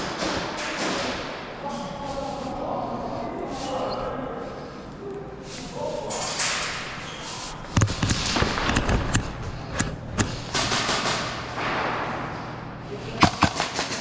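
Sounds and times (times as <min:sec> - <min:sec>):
airsoft guns firing: 0:07.7 - 0:09.3, 0:10.5 - 0:12.2, 0:13.2 - 0:14.0.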